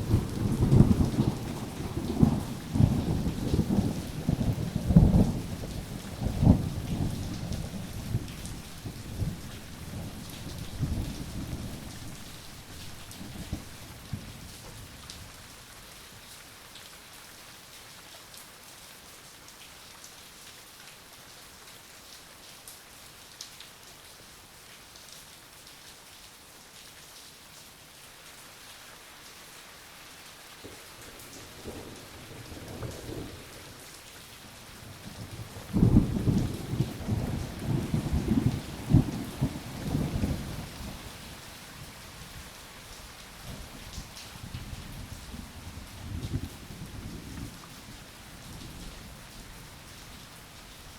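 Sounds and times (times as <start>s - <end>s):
thunder rumbling: 0.0s - 13.8s
steady rain falling: 0.0s - 50.9s.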